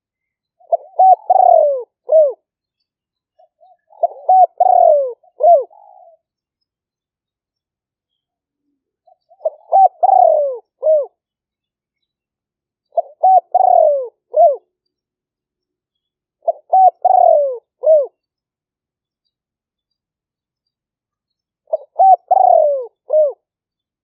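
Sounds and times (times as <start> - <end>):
dove cooing: 0.6 - 2.5, 3.4 - 6.3, 9.0 - 11.2, 12.9 - 14.7, 16.4 - 18.2, 21.7 - 23.5.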